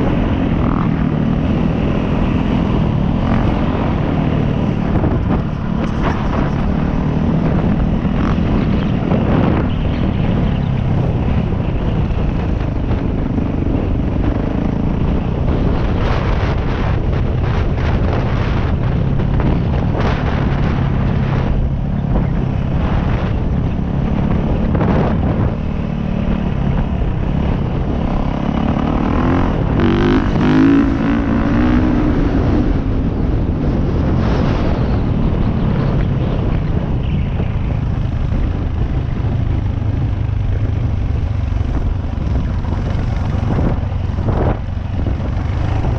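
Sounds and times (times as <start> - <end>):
dirt bike engine revving: 0.0 - 11.6, 24.1 - 32.8
wind buffeting microphone: 0.0 - 45.9.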